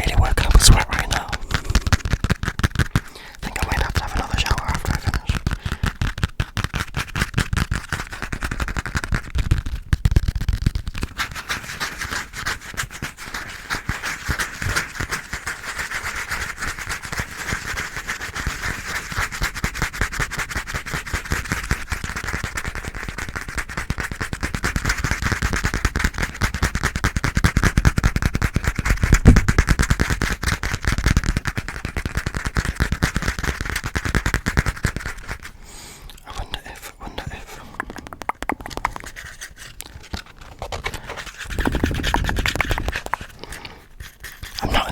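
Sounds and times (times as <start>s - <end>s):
scratchy hiss: 0.0s - 8.0s, 27.6s - 44.9s
fast aggressive tapping: 0.1s - 35.6s, 37.2s - 44.9s.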